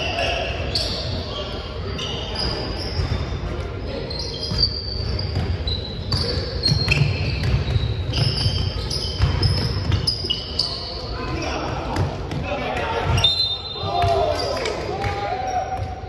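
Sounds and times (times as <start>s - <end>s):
high squeaks: 4.1s - 11.5s.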